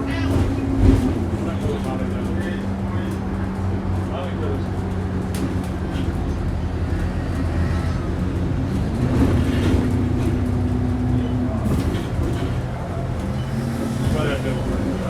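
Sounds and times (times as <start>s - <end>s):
bus diesel engine whining: 0.0s - 15.0s.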